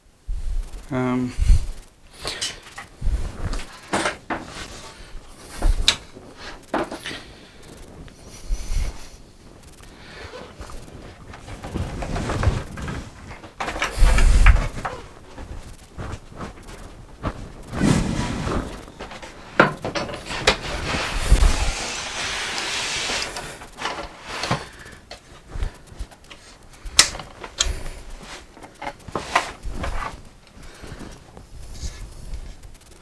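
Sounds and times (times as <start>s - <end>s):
wooden drawer sliding scrape: 17.7s - 24.7s.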